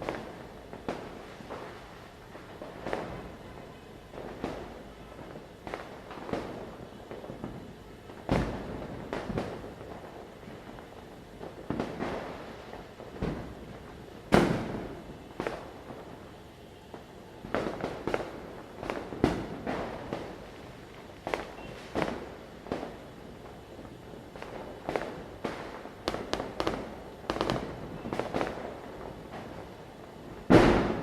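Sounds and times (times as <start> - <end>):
firecrackers bursting: 0.0 - 31.0.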